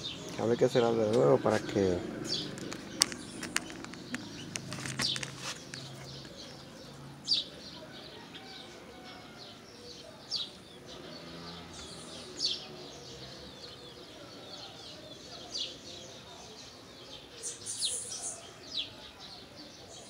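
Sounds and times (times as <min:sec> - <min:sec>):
bird chirping: 0:00.0 - 0:20.0
clicks of hands handling cable: 0:02.6 - 0:06.4.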